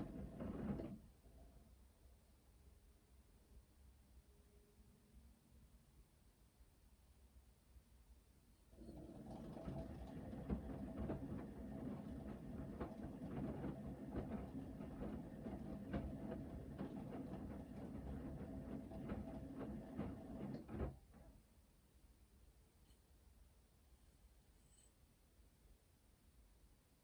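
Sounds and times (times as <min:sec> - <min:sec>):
wet laundry tumbling in drum: 0:00.0 - 0:01.0, 0:08.8 - 0:21.2
washing machine motor hum: 0:00.0 - 0:01.1, 0:08.7 - 0:21.4.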